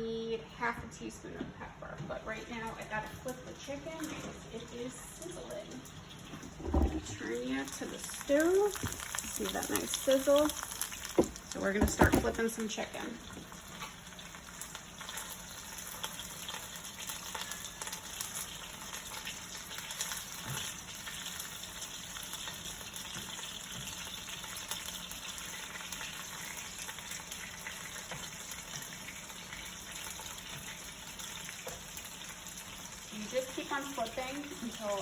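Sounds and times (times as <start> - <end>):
chicken sizzling in hot oil: 2.5 - 35.0.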